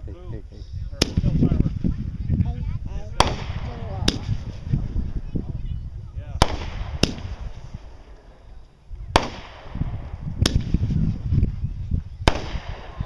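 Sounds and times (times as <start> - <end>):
fireworks bangs: 3.1 - 4.9, 6.2 - 13.0.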